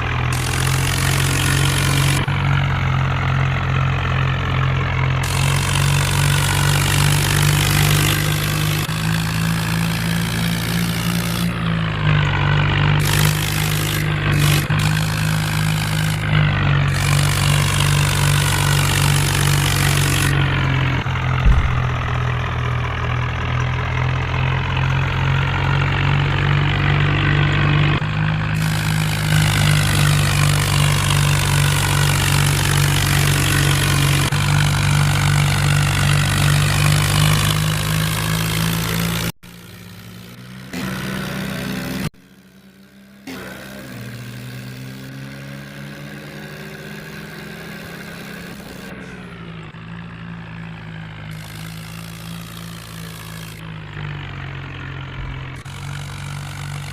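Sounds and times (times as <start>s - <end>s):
diesel tractor engine running: 0.0s - 56.9s
sharp knock: 21.4s - 22.4s.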